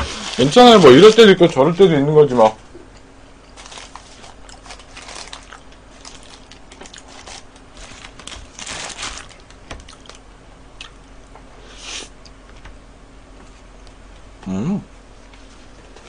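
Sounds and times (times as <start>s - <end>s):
paper wrappers crinkling: 0.0s - 2.4s, 3.6s - 10.2s.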